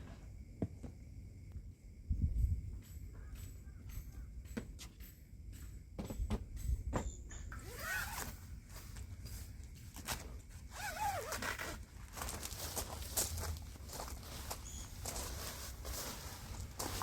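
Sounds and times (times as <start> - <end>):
zipper being pulled: 7.6 - 8.4, 10.7 - 11.8
clicks and rustling of gear: 10.0 - 14.1.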